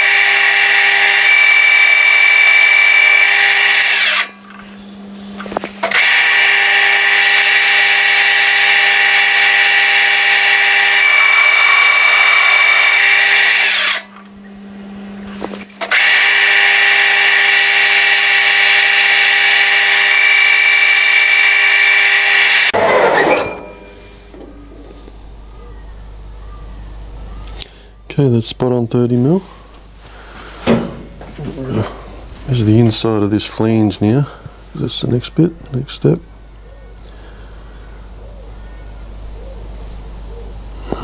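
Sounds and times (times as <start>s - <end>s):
lathe cutting steel: 0.0s - 4.4s, 5.7s - 14.3s, 15.8s - 25.4s
machine hum: 0.0s - 41.0s.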